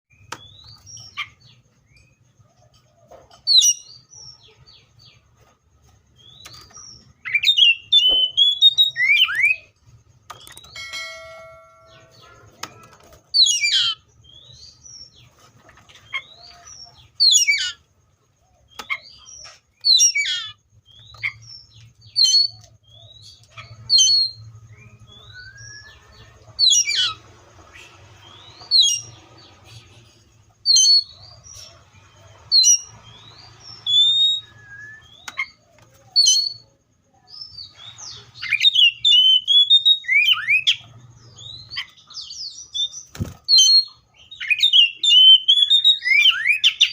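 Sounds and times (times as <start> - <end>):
bird singing sharp descending notes: 10.5 - 12.4, 23.9 - 30.0, 32.0 - 35.6.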